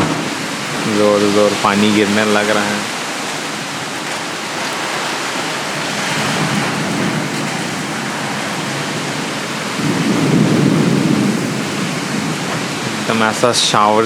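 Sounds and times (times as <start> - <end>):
low thunder rumbling: 0.0 - 13.8
heavy rain pouring: 0.0 - 14.0.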